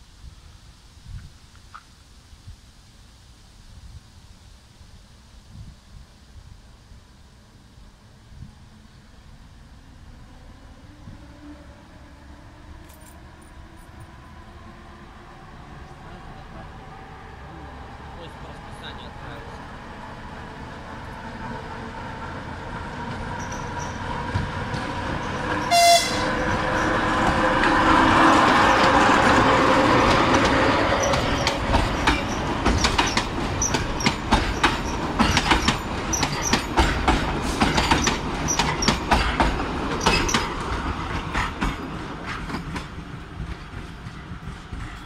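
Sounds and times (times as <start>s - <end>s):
diesel locomotive engine: 4.9s - 45.0s
wheels clacking over rail joints: 22.7s - 45.0s
train horn blast: 25.6s - 28.7s.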